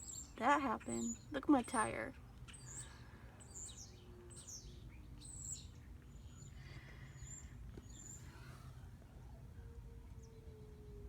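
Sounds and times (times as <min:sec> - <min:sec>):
birds chirping: 0:00.0 - 0:08.4.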